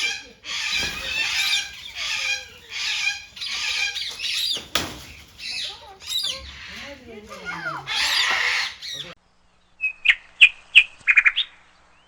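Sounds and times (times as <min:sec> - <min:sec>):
parrots squawking: 0:00.0 - 0:09.2.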